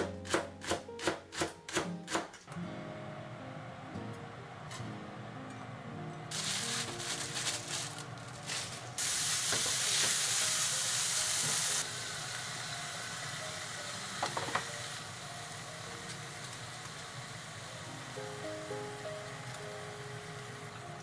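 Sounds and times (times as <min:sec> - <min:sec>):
meat sizzling in a frying pan: 0:06.3 - 0:07.9, 0:08.5 - 0:17.6.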